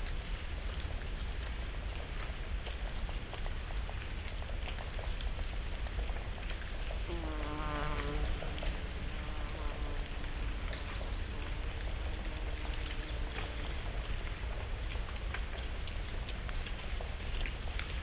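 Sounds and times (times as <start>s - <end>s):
leaves falling on leaf litter: 0.0s - 18.0s
flying insect buzzing: 7.1s - 13.5s.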